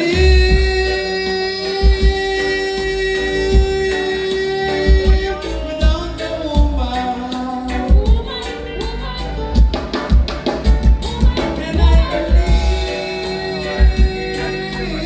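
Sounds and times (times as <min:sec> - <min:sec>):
live band music: 0:00.0 - 0:15.0
wavering melodic lead line: 0:00.0 - 0:15.0
kick drum hits: 0:00.2 - 0:00.9.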